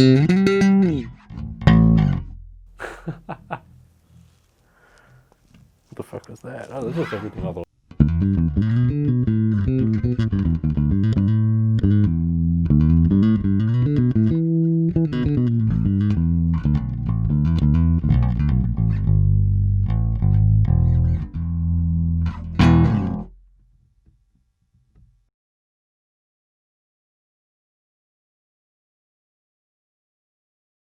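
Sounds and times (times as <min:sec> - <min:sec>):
electric bass notes: 0:00.0 - 0:03.6, 0:07.9 - 0:23.8.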